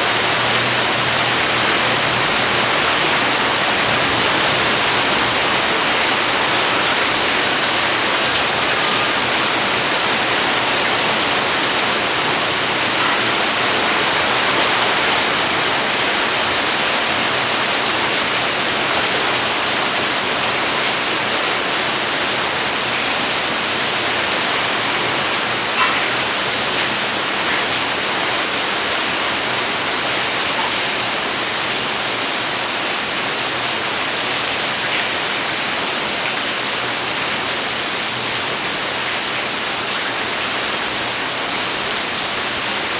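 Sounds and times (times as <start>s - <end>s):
heavy rain: 0.0s - 42.9s.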